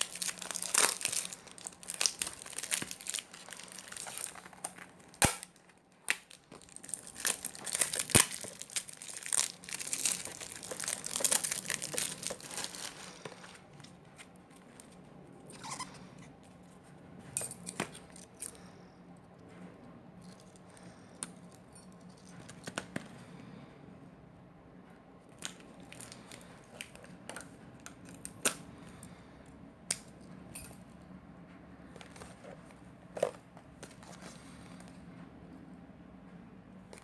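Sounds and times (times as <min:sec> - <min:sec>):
plastic packaging crinkling: 0:00.0 - 0:14.0, 0:25.4 - 0:27.2.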